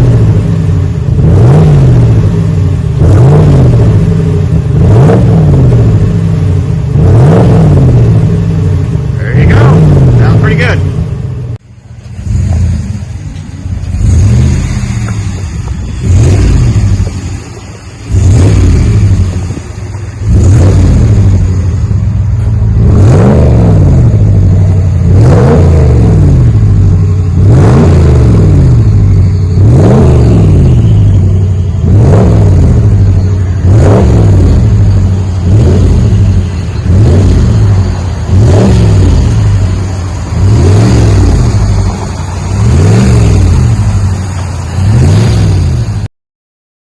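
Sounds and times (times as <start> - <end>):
engine revving: 0.0 - 46.1.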